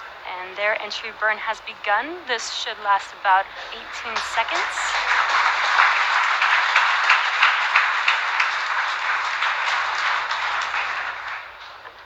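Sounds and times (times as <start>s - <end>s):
crowd applauding and cheering: 3.1s - 12.0s.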